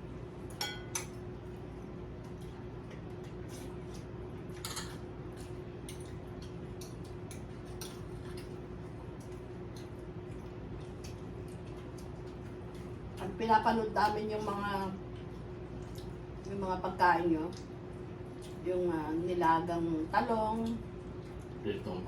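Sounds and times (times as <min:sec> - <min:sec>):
low background hum: 0:00.0 - 0:22.0
cutlery clicking on plates: 0:00.6 - 0:01.2, 0:04.6 - 0:05.0.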